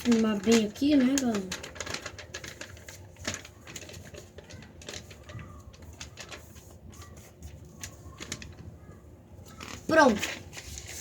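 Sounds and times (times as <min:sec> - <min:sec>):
paper crinkling and rustling: 0:00.0 - 0:11.0.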